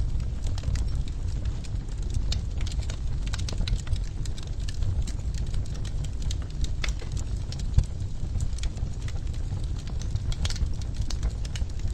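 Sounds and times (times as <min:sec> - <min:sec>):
flames rumbling: 0:00.0 - 0:11.9
wood fire crackling: 0:00.0 - 0:11.9.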